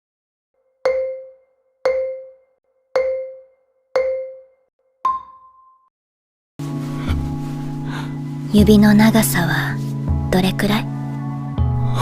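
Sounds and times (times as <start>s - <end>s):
low mallet chimes: 0.9s - 4.5s.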